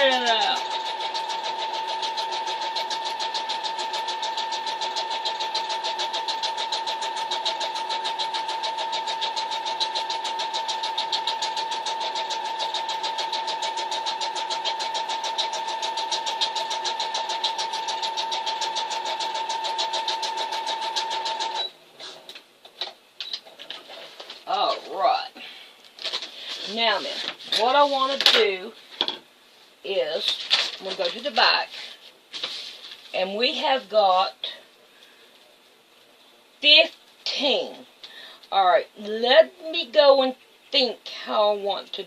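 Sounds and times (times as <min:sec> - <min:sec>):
sewing machine stitching: 0:00.0 - 0:21.7.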